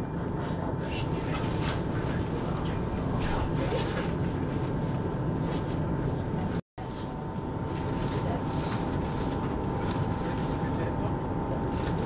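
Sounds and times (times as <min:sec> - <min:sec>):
train carriage rumble and hum: 0:00.0 - 0:12.0.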